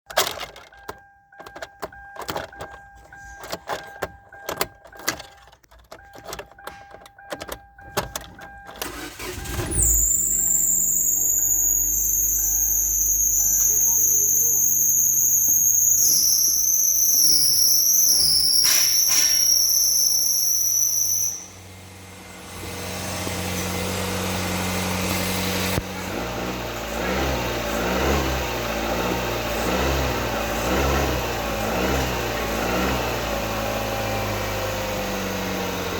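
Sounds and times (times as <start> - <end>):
car engine starting and running: 0.1 - 35.9
chime beeping: 6.0 - 21.9.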